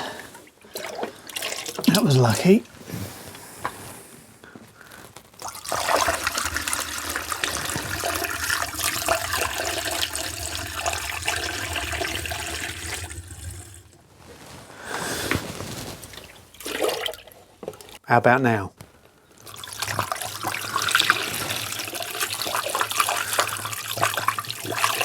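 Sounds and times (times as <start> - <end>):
water pouring into radiator: 0.0 - 2.7, 5.4 - 14.2, 16.0 - 18.0, 19.4 - 25.0.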